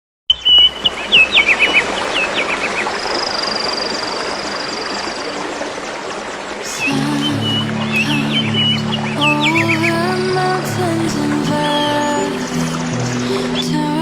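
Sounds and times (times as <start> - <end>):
bird chirps sweeping downward: 0.3 - 4.8.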